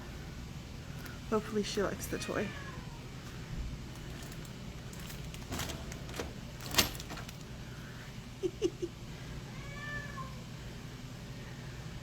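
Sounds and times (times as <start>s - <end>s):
metal cage door rattling: 4.2s - 7.4s.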